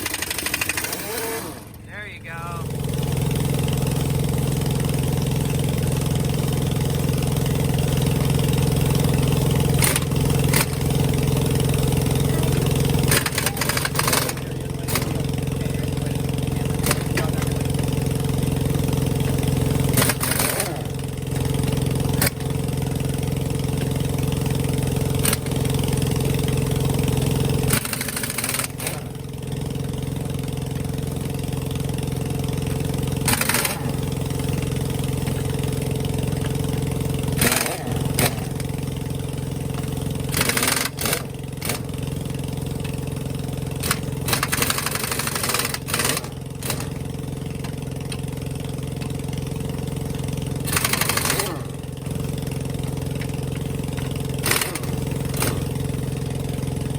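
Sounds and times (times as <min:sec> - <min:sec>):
impact wrench rattling: 0:00.0 - 0:01.8, 0:08.0 - 0:25.8, 0:27.6 - 0:29.2, 0:32.7 - 0:56.9
engine idling: 0:00.0 - 0:56.9.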